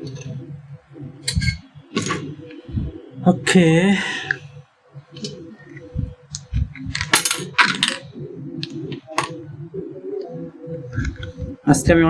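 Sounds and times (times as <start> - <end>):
metal parts clinking: 1.3 - 2.3, 6.9 - 8.0.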